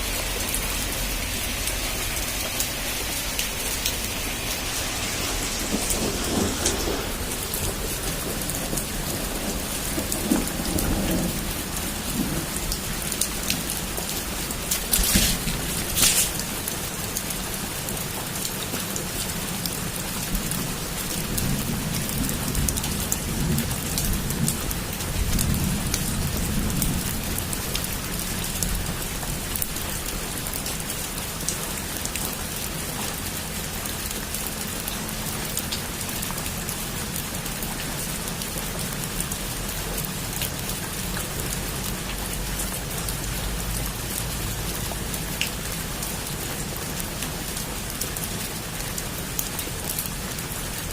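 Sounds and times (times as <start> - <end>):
heavy rain falling: 0.0 - 50.9
low rumble of thunder: 0.2 - 16.7, 19.6 - 30.0.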